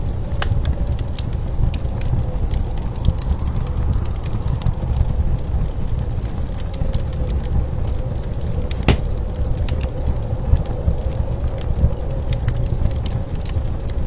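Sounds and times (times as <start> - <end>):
wood fire crackling: 8.8 - 9.4.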